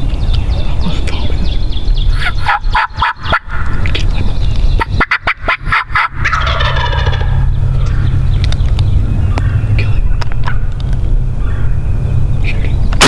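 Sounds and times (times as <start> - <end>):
turkey gobbling: 2.1 - 3.9, 4.8 - 8.1.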